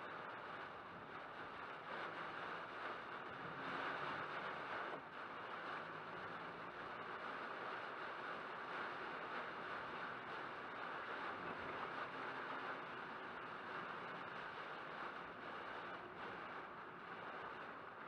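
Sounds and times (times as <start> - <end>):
heavy rain on car: 0.0 - 18.0
wet road noise: 0.1 - 18.0.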